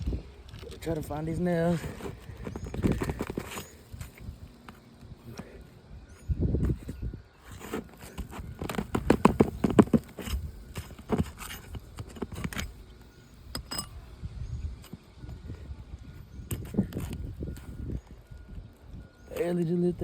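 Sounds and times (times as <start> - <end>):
pry tool scraping and clicking: 13.5 - 14.0.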